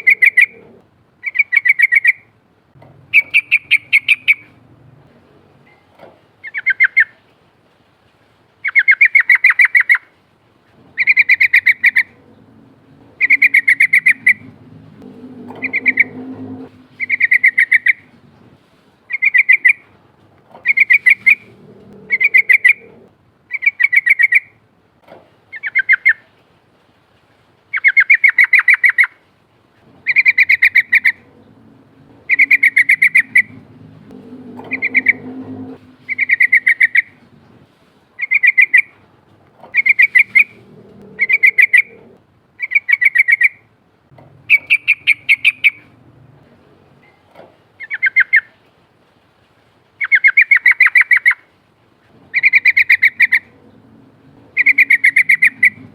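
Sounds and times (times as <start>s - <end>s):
bulbul calling in trills: 3.1s - 4.6s, 11.0s - 12.3s, 13.2s - 14.6s, 15.4s - 18.1s, 19.1s - 19.9s, 20.6s - 24.5s, 30.1s - 31.4s, 32.2s - 37.2s, 38.2s - 38.9s, 39.7s - 43.6s, 44.5s - 45.9s, 50.0s - 51.4s, 52.3s - 53.6s, 54.5s - 55.9s.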